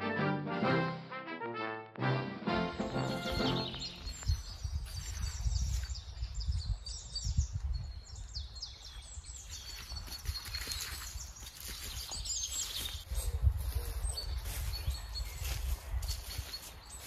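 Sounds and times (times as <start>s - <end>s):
birds singing and chirping: 2.6s - 17.0s
wind rumble on microphone: 3.9s - 16.9s.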